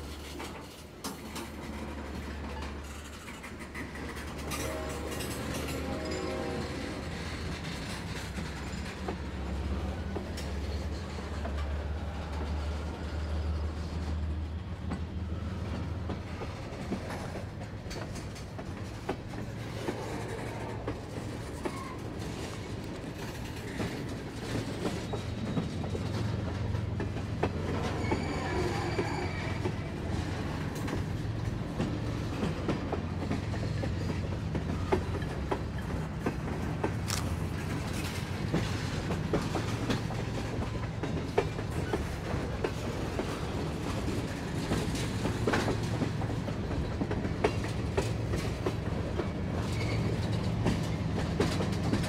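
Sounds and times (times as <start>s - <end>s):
wheels clanking over rail joints: 0.0s - 13.1s, 14.8s - 52.0s
freight train rumbling past: 0.0s - 52.0s
high wheel squeal: 27.7s - 29.9s.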